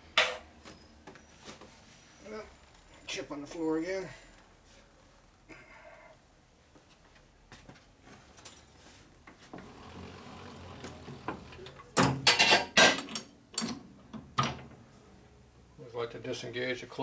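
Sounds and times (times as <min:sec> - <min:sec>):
metal tools clanking: 0:10.8 - 0:13.8.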